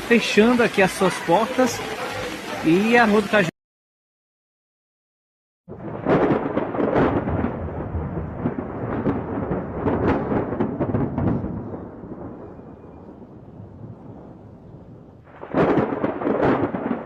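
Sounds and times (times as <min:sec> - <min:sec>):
storm roar with sharp crackles: 0:05.7 - 0:17.0.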